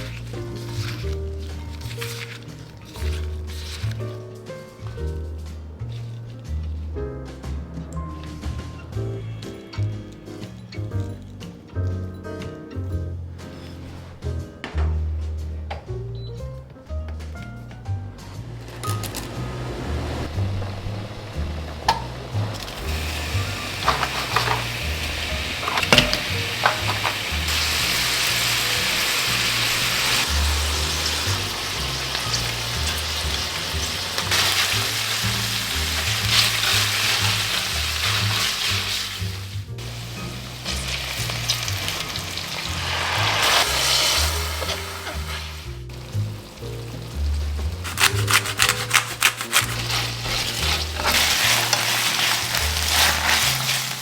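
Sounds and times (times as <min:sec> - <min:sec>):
food sizzling in frying pan: 0:00.0 - 0:04.0, 0:20.4 - 0:54.0
background music with bass: 0:00.0 - 0:54.0.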